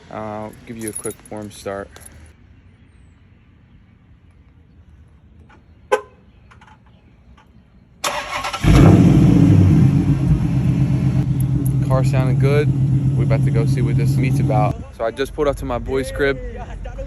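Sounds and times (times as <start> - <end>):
car engine running: 8.6 - 14.7.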